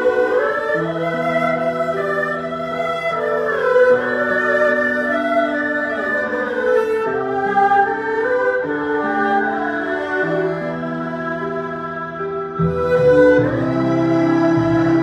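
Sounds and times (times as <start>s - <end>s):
bowed fiddles playing slow melody: 0.0s - 15.0s.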